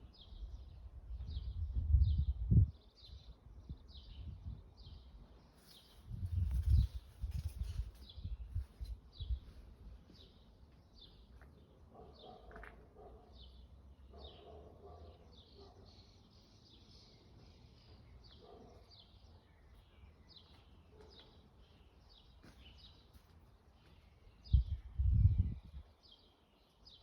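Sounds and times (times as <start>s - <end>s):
birds chirping: 9.2s - 27.0s.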